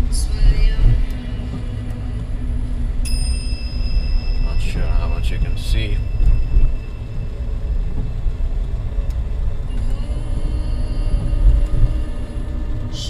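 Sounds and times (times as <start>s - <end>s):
faint steady engine hum: 0.0s - 13.0s
low vehicle rumble: 0.0s - 13.0s.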